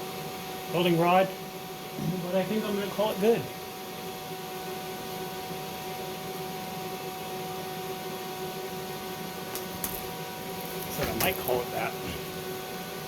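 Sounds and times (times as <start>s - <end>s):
electrical hum with tones: 0.0s - 13.0s
constant hiss: 9.5s - 12.5s.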